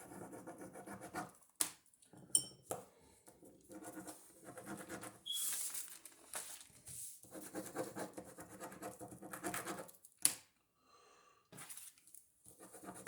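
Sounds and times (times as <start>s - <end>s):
ballpoint pen scribbling on paper: 0.0s - 1.4s, 3.4s - 5.2s, 7.2s - 10.0s, 12.5s - 13.0s.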